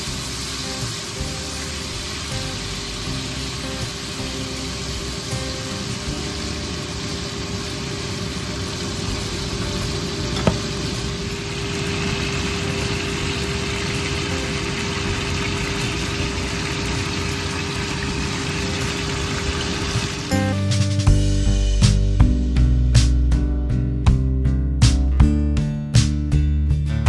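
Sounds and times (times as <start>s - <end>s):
steady hum: 0.0s - 20.5s
food sizzling in a pan: 0.0s - 20.8s.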